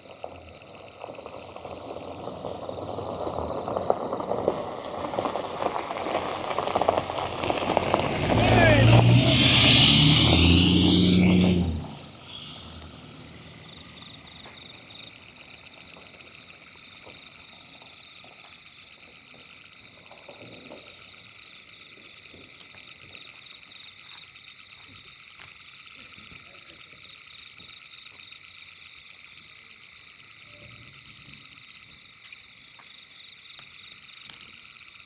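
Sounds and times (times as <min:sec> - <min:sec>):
frogs and insects calling: 0:00.0 - 0:35.0
loud low hum: 0:08.1 - 0:14.4.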